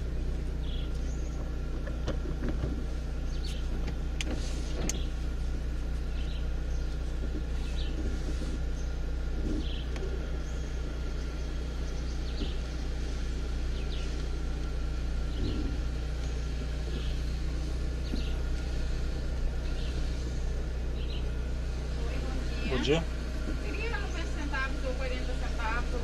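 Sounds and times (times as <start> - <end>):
bird chirping: 0.0 - 2.0, 6.0 - 8.1, 8.7 - 18.5, 19.5 - 21.4
car engine idling: 0.0 - 26.0.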